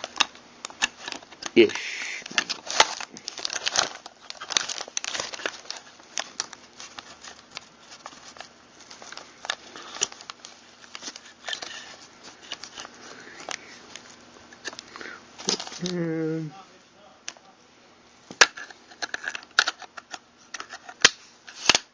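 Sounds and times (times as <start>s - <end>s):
shotgun parts clicking and rattling: 18.4s - 21.9s.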